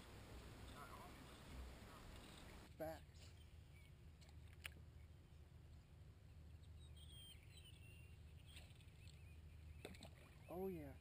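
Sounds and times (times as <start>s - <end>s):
faint outdoor rumble: 0.0s - 11.0s
faint bird chirps: 0.6s - 4.0s, 6.2s - 11.0s.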